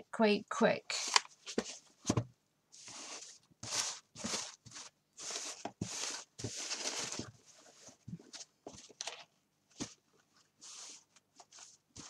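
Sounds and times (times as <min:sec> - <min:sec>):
paper pages rustling: 0:02.8 - 0:12.0.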